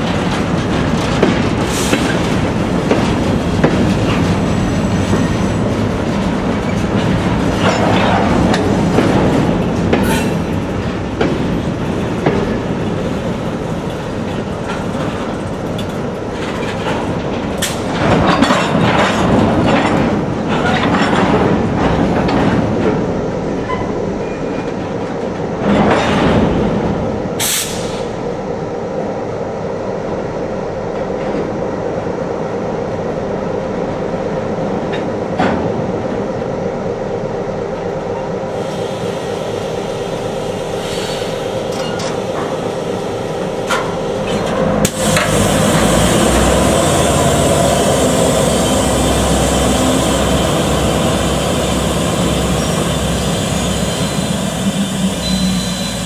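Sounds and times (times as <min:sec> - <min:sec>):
train wheels clanking over rails: 0:00.0 - 0:28.2, 0:40.7 - 0:56.0
diesel locomotive rumble: 0:00.0 - 0:56.0
high wheel squeals: 0:47.7 - 0:56.0.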